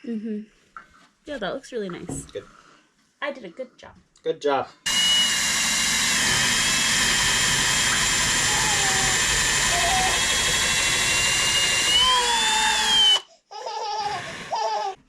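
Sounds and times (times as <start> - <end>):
power drill whining: 4.9 - 13.2, 14.0 - 15.0.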